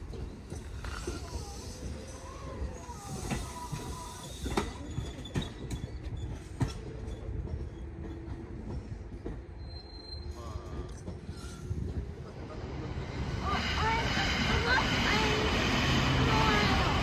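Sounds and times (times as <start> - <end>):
train low rumble: 0.0 - 17.0
faint wheel squeal: 0.5 - 7.9, 9.6 - 11.7.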